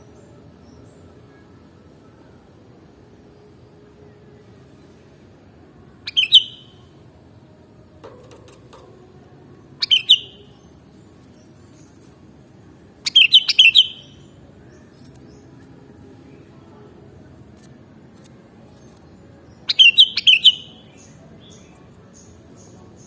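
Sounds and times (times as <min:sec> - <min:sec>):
bird song with chirpy notes: 0:06.0 - 0:06.9, 0:09.6 - 0:12.2, 0:13.0 - 0:15.7, 0:18.2 - 0:23.0.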